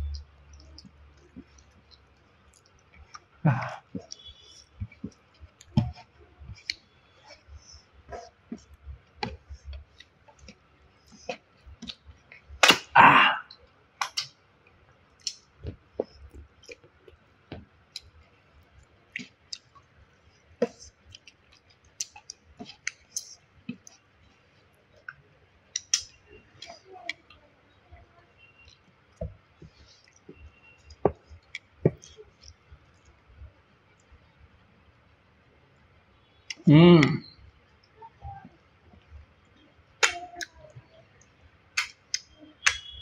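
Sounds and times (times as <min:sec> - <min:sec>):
wet chewing and lip smacks: 0:00.0 - 0:07.4, 0:08.1 - 0:12.8, 0:15.2 - 0:17.2, 0:20.6 - 0:24.1, 0:25.0 - 0:27.3, 0:28.6 - 0:33.3.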